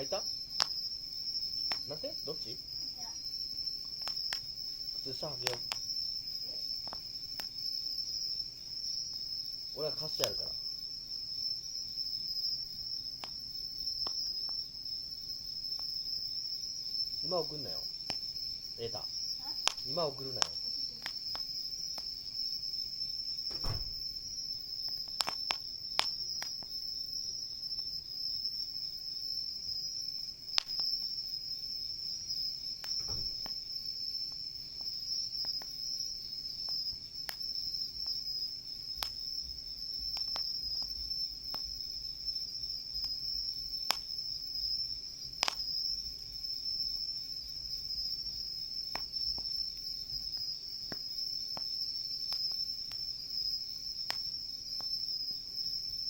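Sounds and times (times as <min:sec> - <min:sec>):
campfire crackles and pops: 0:00.0 - 0:56.0
night insects chorus: 0:00.0 - 0:56.0.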